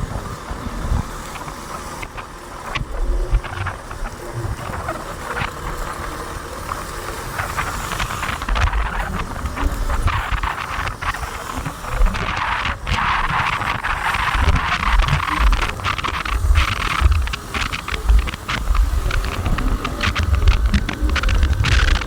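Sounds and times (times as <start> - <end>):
rain hissing on wet road: 0.0 - 22.0
wind gusts on microphone: 0.0 - 22.0.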